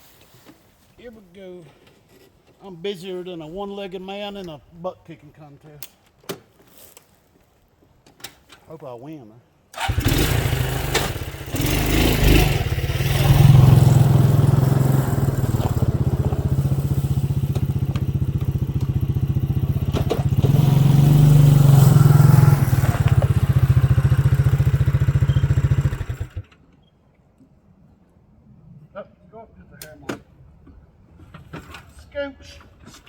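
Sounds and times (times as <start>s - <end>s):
atv engine running: 9.8s - 26.5s.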